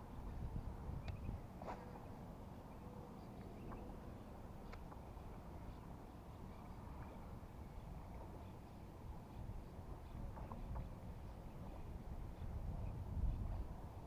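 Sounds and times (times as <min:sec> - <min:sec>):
faint sharp clicks: 0:01.0 - 0:01.2, 0:04.6 - 0:05.0.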